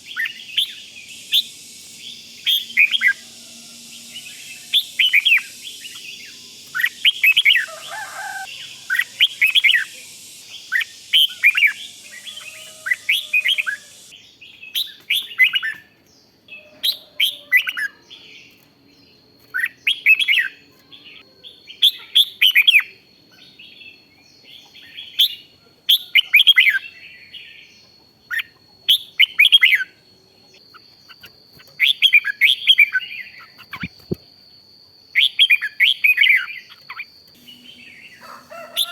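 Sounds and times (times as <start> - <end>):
bird singing chirpy phrases: 0.0 - 3.3, 3.9 - 16.7.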